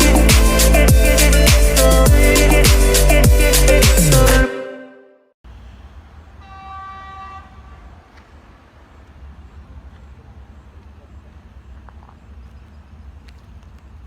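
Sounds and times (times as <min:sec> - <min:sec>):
music: 0:00.0 - 0:05.2
train horn: 0:06.4 - 0:07.9.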